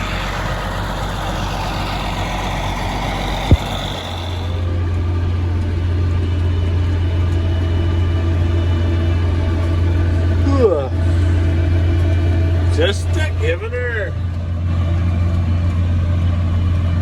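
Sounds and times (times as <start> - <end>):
spraying rig engine running: 0.0 - 5.6.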